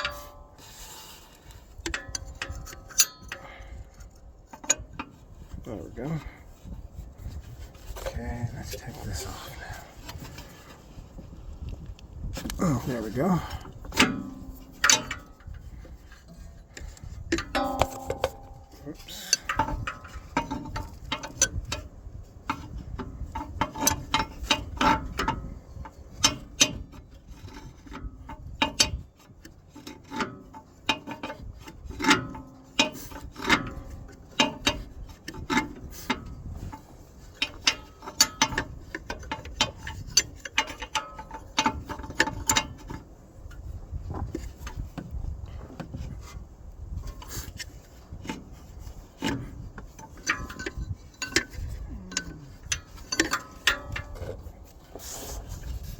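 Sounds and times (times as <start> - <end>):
metal scraping: 0.0 - 11.4, 12.3 - 21.8, 47.0 - 55.9.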